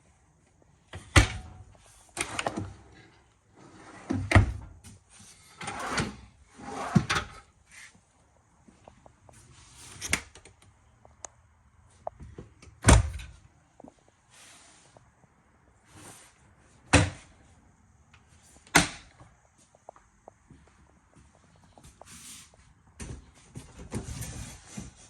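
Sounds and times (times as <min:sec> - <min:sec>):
cabinet doors and drawers shutting: 0:01.0 - 0:03.0, 0:03.6 - 0:04.8, 0:05.6 - 0:07.4, 0:12.8 - 0:13.4, 0:16.9 - 0:17.3, 0:18.7 - 0:19.1.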